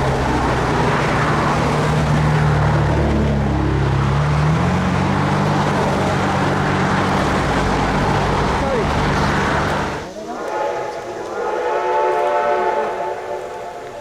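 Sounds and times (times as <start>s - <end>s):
car engine hum: 0.0s - 10.1s
road noise: 0.0s - 14.0s.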